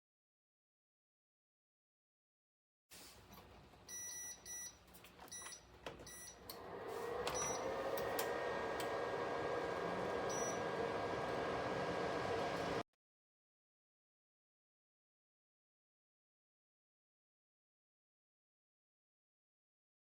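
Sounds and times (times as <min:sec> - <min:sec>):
fan whooshing and humming: 0:06.4 - 0:12.8
control panel beeping: 0:10.2 - 0:10.8.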